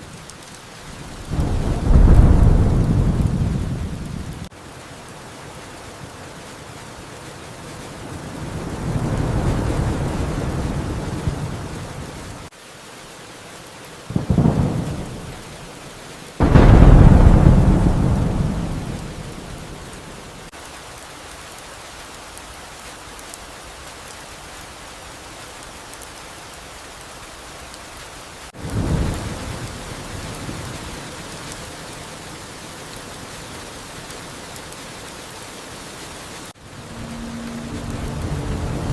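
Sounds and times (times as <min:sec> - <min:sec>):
steady rain: 0:00.0 - 0:38.9
thunder claps: 0:00.1 - 0:12.5, 0:14.1 - 0:15.5, 0:16.4 - 0:20.5, 0:36.6 - 0:38.9.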